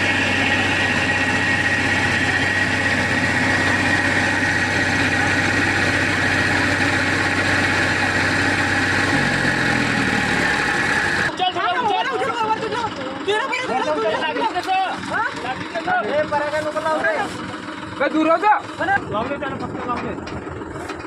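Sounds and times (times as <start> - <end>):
tractor diesel engine idling: 0.0 - 21.0.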